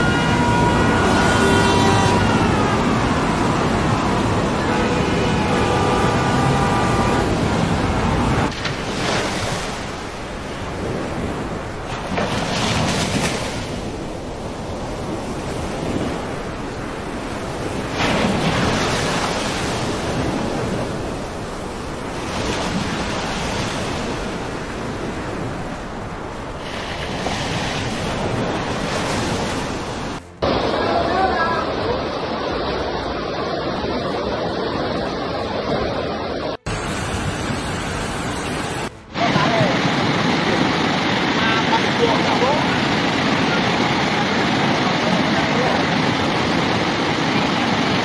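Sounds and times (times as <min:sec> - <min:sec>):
steady siren-like tone: 0:00.0 - 0:08.5
floodwater rushing: 0:00.0 - 0:48.0.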